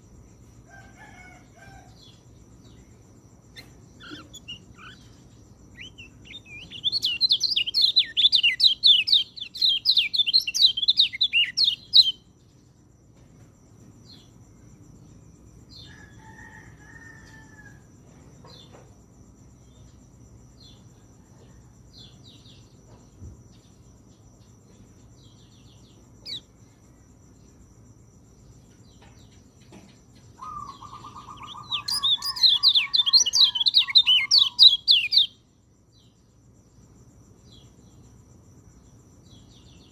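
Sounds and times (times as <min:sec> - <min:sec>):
bird trill: 0:03.5 - 0:12.3, 0:25.7 - 0:26.6, 0:30.3 - 0:35.4.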